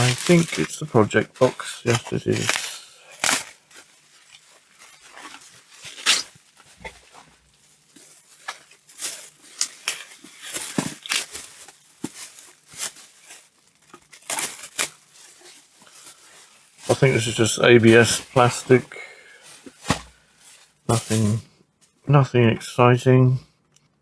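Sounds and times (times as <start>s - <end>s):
plastic packaging crinkling: 0.0s - 21.3s.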